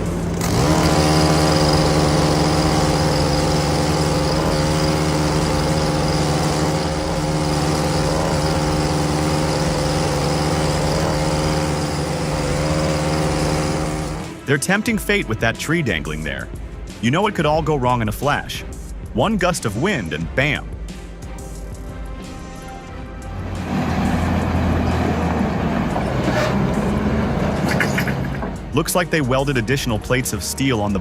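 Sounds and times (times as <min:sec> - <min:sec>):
heavy vehicle engine running: 0:00.0 - 0:14.5, 0:22.5 - 0:28.8.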